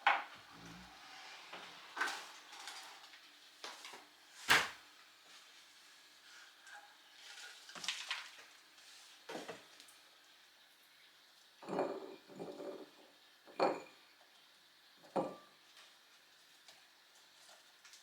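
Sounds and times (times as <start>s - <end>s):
kitchenware knocks and clinks: 11.6s - 14.0s, 15.1s - 15.5s.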